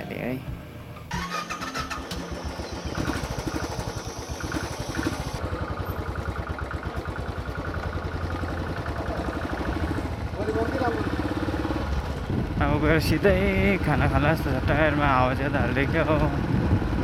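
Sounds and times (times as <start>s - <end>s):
motorcycle engine running: 1.1s - 17.0s.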